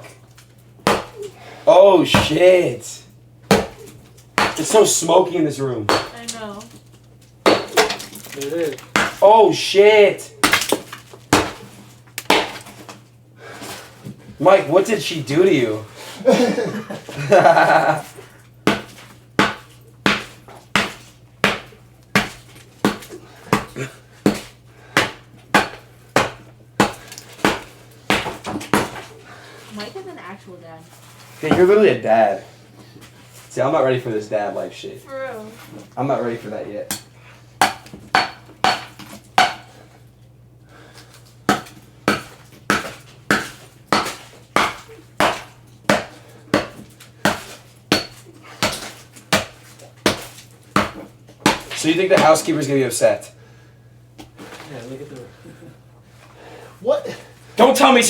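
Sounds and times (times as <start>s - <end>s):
heavy blows smashing a box: 0.9s - 1.2s, 2.1s - 2.5s, 10.4s - 12.7s
clanking strikes on a package: 10.4s - 12.9s.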